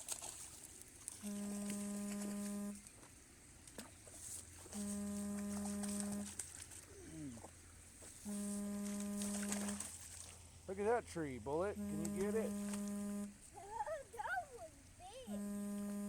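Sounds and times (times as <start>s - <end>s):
faint low hum: 0.0s - 16.0s
distant horn blasts: 1.2s - 2.9s, 4.6s - 7.5s, 8.1s - 13.5s, 15.2s - 16.0s.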